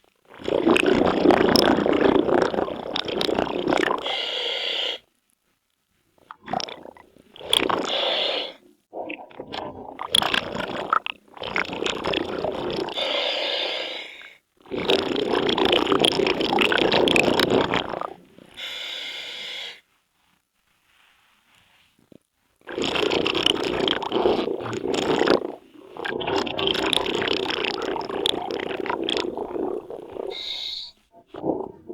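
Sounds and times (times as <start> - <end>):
bubbling exhalations: 0.3 - 4.2, 6.3 - 19.1, 22.6 - 31.9
diver breathing through regulator: 4.0 - 5.0, 7.7 - 8.6, 12.8 - 14.4, 17.4 - 19.8, 28.2 - 31.9.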